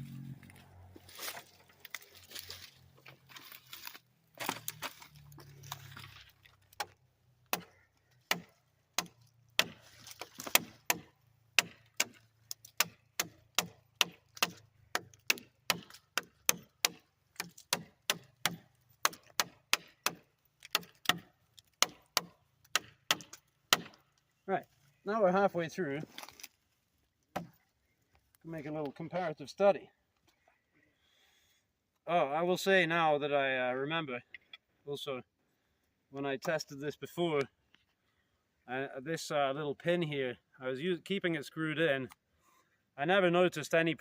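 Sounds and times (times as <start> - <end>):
knife chopping into wood: 8.3 - 24.0.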